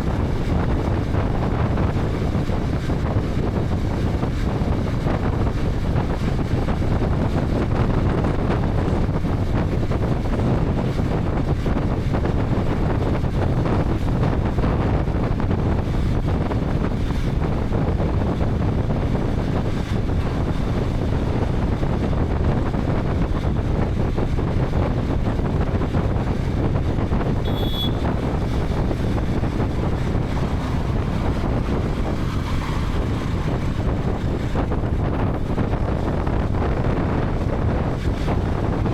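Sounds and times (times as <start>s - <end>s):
wind rushing over microphone: 0.0s - 38.9s
motorcycle engine: 27.4s - 35.6s
short high beep: 27.5s - 28.0s.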